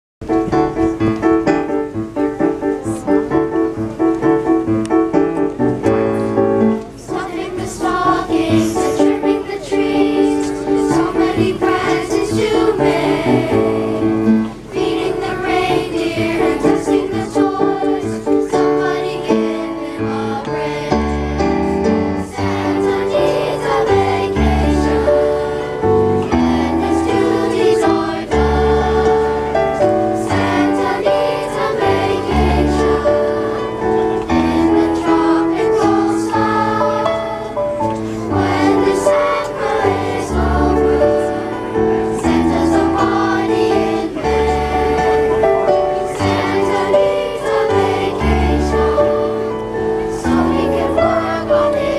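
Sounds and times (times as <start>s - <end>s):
choir singing with accompaniment: 5.9s - 51.9s.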